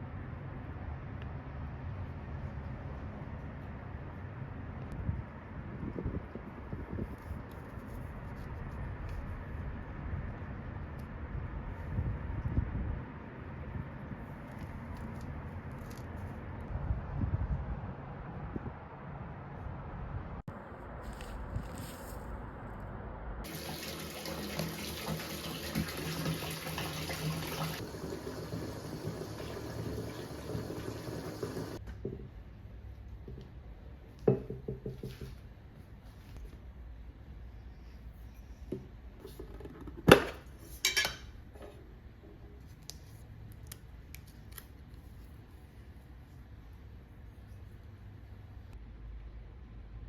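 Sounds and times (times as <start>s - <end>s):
water running: 23.4s - 31.8s.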